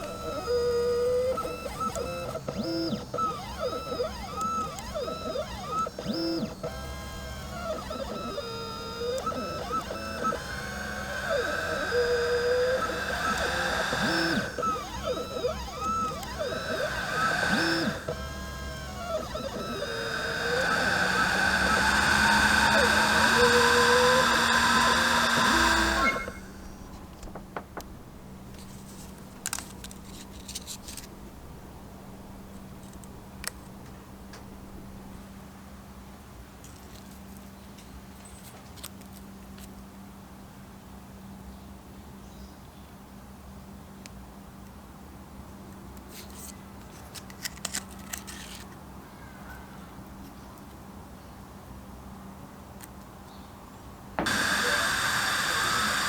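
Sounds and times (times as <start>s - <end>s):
machine whine and hiss: 0.0s - 27.4s, 54.2s - 56.0s
faint steady hum: 0.0s - 35.4s, 53.3s - 56.0s.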